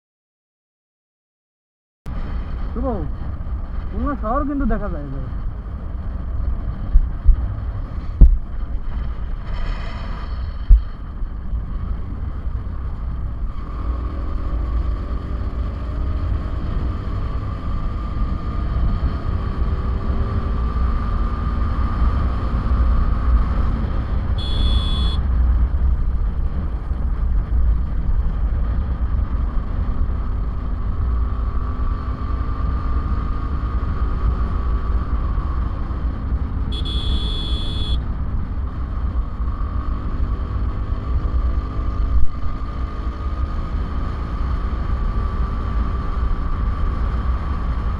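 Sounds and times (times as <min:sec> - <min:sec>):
wind rumble on microphone: 0:02.1 - 0:24.4, 0:25.2 - 0:36.8, 0:38.0 - 0:47.9
motorcycle engine running: 0:24.1 - 0:31.1, 0:34.9 - 0:39.4
high-pitched beep: 0:24.4 - 0:25.2, 0:36.8 - 0:38.0.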